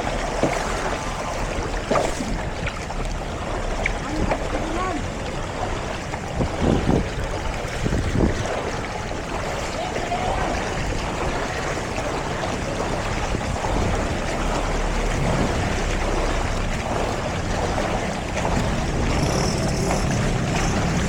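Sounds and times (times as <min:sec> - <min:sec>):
rushing water: 0:00.0 - 0:21.0
wind noise: 0:06.2 - 0:09.6, 0:12.8 - 0:16.1.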